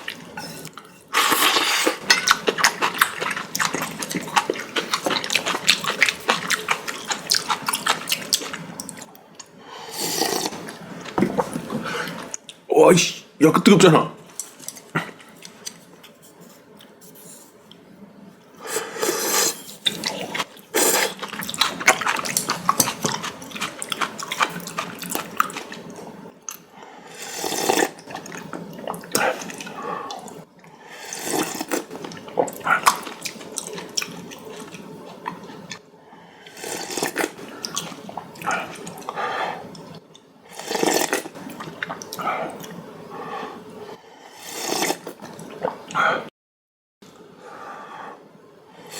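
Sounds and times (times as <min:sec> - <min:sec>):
person slurping noodles: 0:01.1 - 0:09.0, 0:09.8 - 0:10.8, 0:18.6 - 0:25.9, 0:27.1 - 0:28.3, 0:31.0 - 0:34.7, 0:36.5 - 0:39.8, 0:40.5 - 0:46.3
person chewing: 0:01.1 - 0:09.5, 0:19.8 - 0:26.6, 0:31.2 - 0:35.8, 0:36.6 - 0:39.9.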